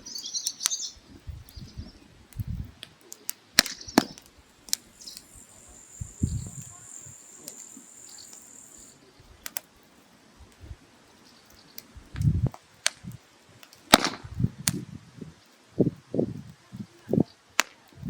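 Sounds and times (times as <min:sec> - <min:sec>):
wood fire crackling: 0:00.0 - 0:18.0
sharp pops: 0:02.4 - 0:09.7, 0:12.2 - 0:14.8, 0:17.6 - 0:17.9
high steady whine: 0:04.8 - 0:09.0.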